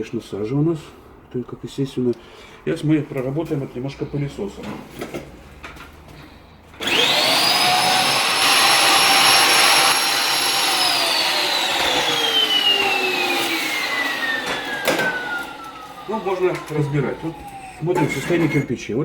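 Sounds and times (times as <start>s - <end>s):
vacuum cleaner motor whining: 6.8s - 18.3s.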